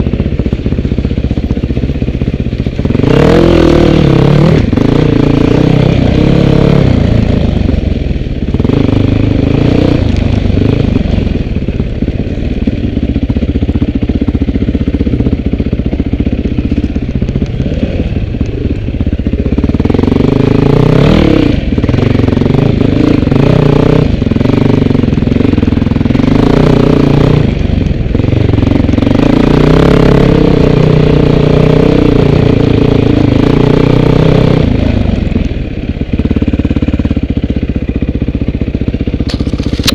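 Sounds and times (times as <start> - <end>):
off-road vehicle engine revving: 2.7 - 11.9, 16.0 - 35.5.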